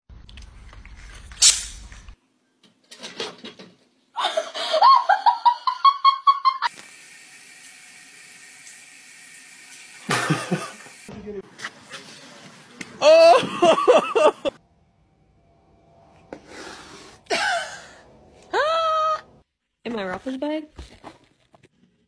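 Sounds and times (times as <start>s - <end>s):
tap water running into sink: 6.7s - 11.1s
high-pitched voice laughing: 13.0s - 14.6s.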